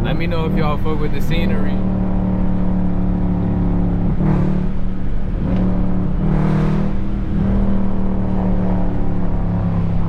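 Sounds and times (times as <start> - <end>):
car engine running: 0.0 - 10.0
road or wind noise: 0.0 - 10.0.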